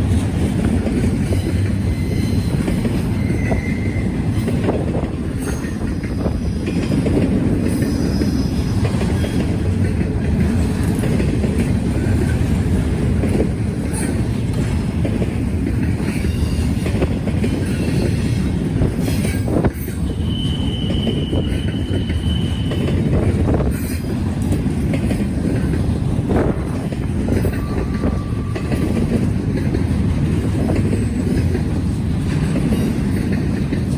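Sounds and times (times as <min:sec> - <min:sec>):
train wheels rumbling on rail: 0:00.0 - 0:33.9
wheel squeals: 0:01.3 - 0:04.7, 0:07.7 - 0:09.5, 0:19.0 - 0:24.1.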